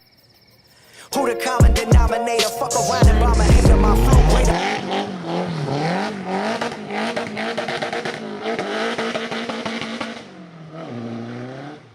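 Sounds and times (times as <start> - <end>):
car engine revving: 2.9 - 11.9.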